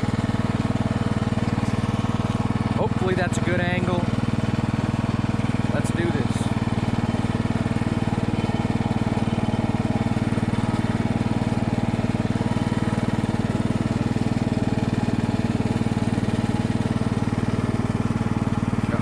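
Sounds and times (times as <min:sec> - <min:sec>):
riding lawn mower engine running: 0:00.0 - 0:19.0.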